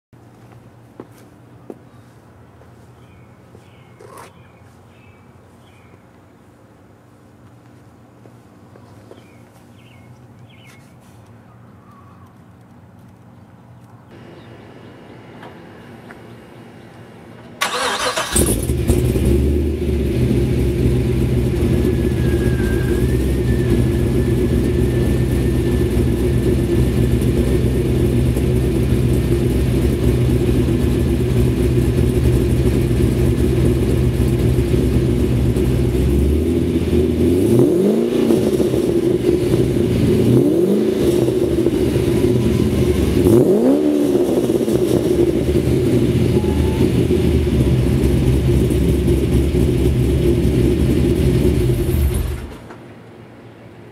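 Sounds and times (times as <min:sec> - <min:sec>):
car engine starting and idling: 0:17.0 - 0:53.0
engine revving: 0:17.6 - 0:28.1, 0:30.0 - 0:52.5.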